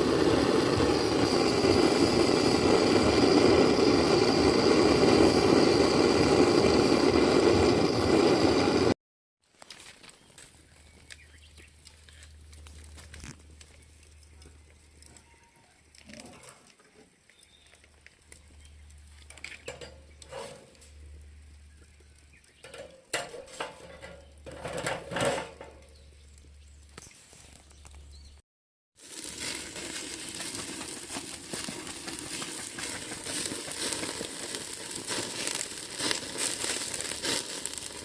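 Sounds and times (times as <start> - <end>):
metal grill parts clinking: 19.3 - 21.0, 22.6 - 25.9.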